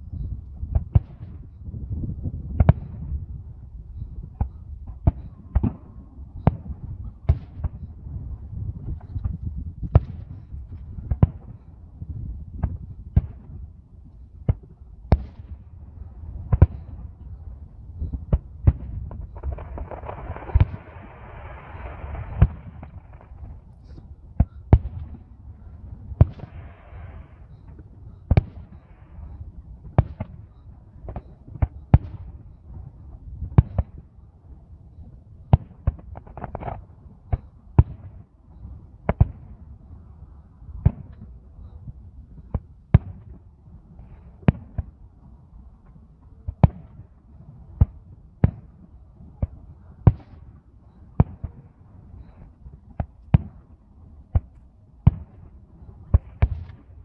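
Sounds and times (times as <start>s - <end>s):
fireworks bangs: 18.4s - 25.2s
fireworks crackling hiss: 19.2s - 24.1s.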